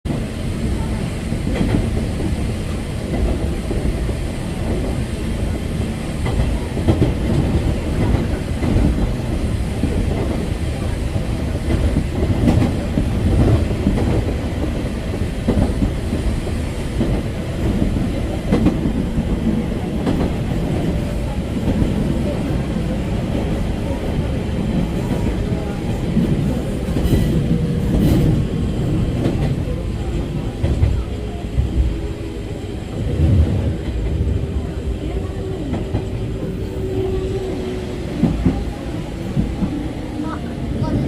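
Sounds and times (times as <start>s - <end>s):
train rumbling on rails: 0.0s - 41.0s.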